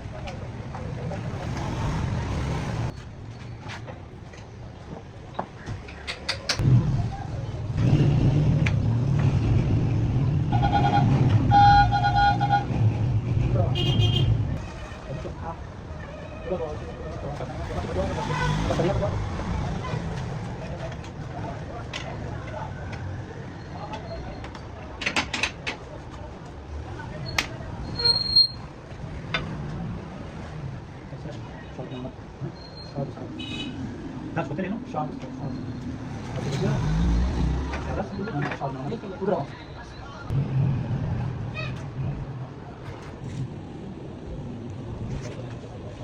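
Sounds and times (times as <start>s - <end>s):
vehicle engine rumbling: 0.0s - 46.0s
car horn honking: 10.5s - 12.7s, 13.8s - 14.4s, 33.4s - 33.8s.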